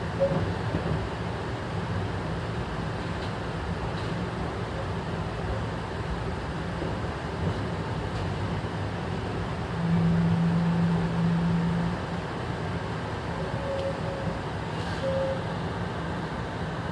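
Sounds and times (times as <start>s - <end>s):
train hum: 0.0s - 16.9s
train low rumble: 0.0s - 16.9s.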